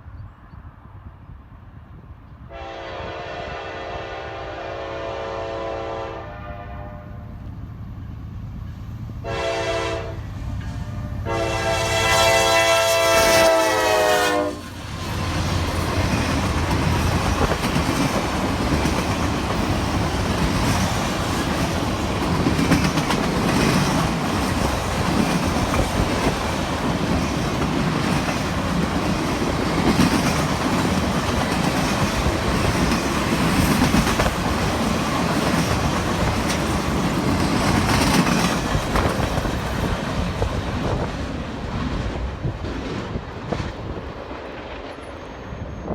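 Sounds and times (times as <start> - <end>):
locomotive air horn: 2.5 - 7.4, 9.2 - 14.7
freight cars rumbling on rails: 7.3 - 45.9.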